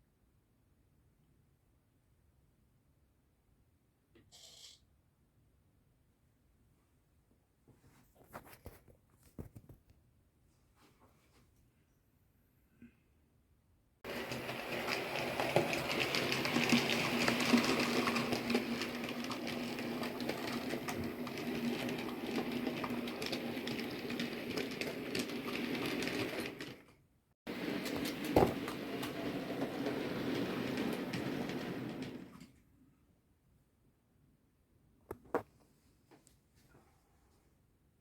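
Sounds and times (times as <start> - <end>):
model train motor hum: 14.1 - 26.7
wheels clicking over rail joints: 14.1 - 26.9, 27.5 - 32.5.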